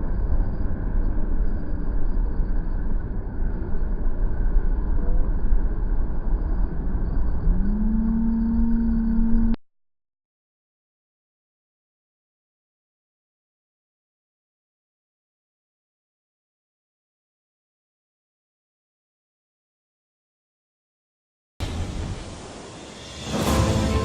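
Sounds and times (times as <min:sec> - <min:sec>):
motor vehicle rumble: 0:00.0 - 0:09.6
engine hum rising in pitch: 0:04.6 - 0:09.6.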